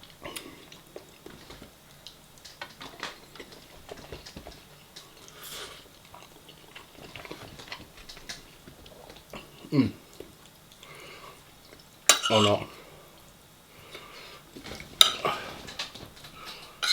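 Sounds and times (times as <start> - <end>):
chewing: 0.0 - 12.9.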